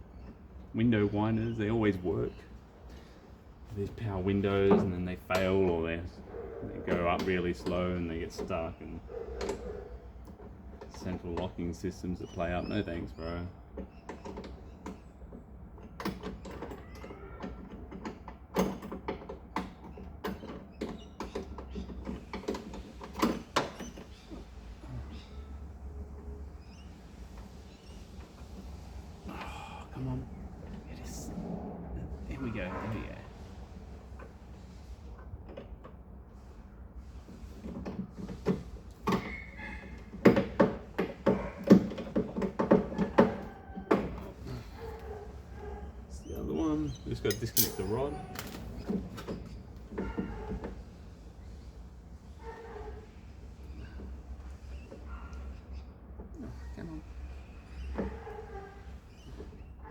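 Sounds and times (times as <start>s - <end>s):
hand tools clicking and knocking on metal: 6.9s - 12.0s, 13.8s - 24.5s, 37.6s - 45.8s, 46.4s - 50.8s
metallic clicks and knocks: 47.2s - 49.3s.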